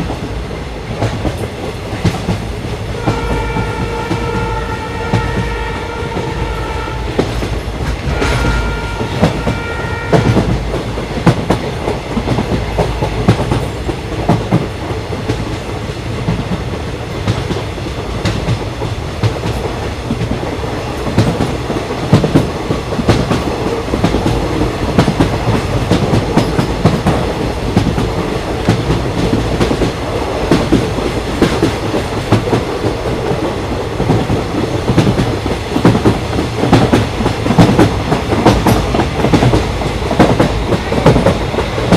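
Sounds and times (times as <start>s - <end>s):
train running with rumble: 0.0s - 41.9s
train horn: 2.9s - 7.4s, 8.0s - 10.6s.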